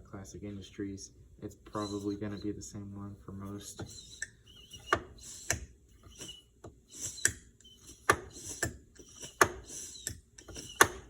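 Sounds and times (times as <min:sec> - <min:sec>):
air hissing and whistling: 0:01.7 - 0:02.7, 0:03.8 - 0:11.0.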